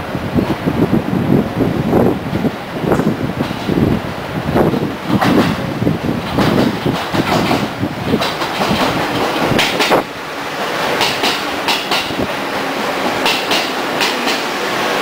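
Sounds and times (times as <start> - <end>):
electric train passing: 0.0 - 15.0
train wheels clacking on rail joints: 2.3 - 3.9, 4.6 - 14.7.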